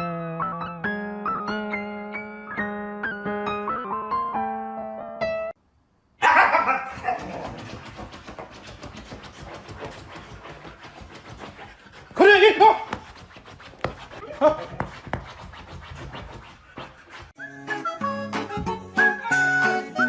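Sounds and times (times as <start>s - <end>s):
piano melody: 0.0s - 5.6s, 17.4s - 20.0s
fast rhythmic breathing noise: 6.8s - 20.0s.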